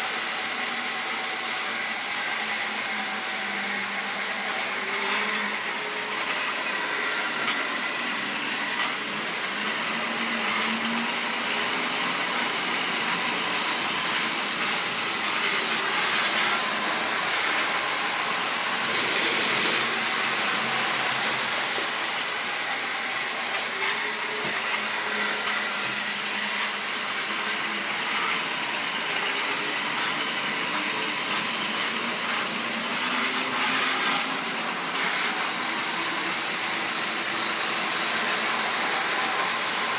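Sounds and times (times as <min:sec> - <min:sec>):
model train motor whirring: 0:00.0 - 0:39.9.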